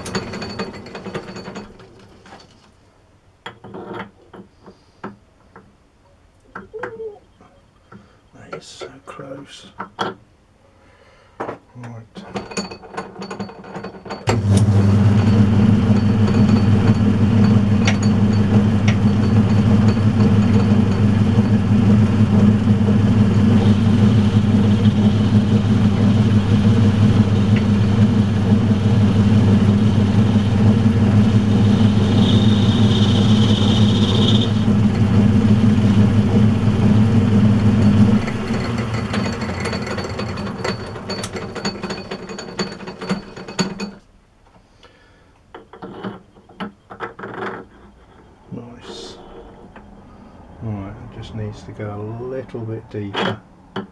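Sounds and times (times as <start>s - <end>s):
metal lathe motor hum: 0.0s - 2.0s, 14.2s - 44.0s
lathe spinning down: 0.0s - 2.4s, 14.2s - 43.9s, 48.4s - 53.3s
cutting tool whine: 14.2s - 43.4s.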